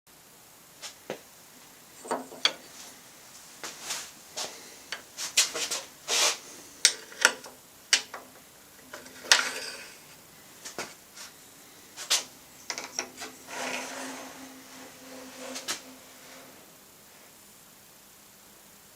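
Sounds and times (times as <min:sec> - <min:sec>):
metal parts clicking and scraping: 0:02.0 - 0:02.9, 0:04.9 - 0:10.1, 0:12.0 - 0:16.6.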